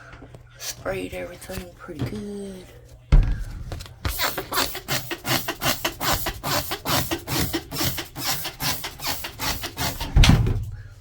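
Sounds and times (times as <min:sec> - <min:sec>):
spray bottle squirts: 0:04.1 - 0:10.2.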